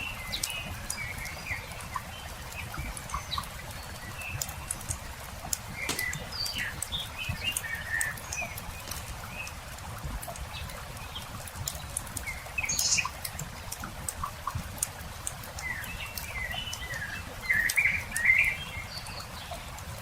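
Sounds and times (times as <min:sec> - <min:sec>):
small birds chirping: 0:00.0 - 0:09.7, 0:10.4 - 0:13.7, 0:15.5 - 0:19.8
campfire crackling and popping: 0:01.7 - 0:16.3.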